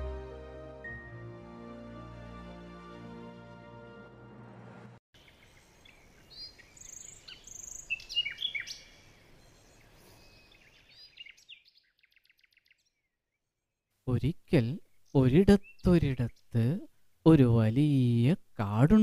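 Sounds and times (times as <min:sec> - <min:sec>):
faint outdoor hiss: 0:05.2 - 0:11.6, 0:14.0 - 0:19.0
faint rapid bird trill: 0:05.2 - 0:13.5
songbirds chirping: 0:05.2 - 0:18.2.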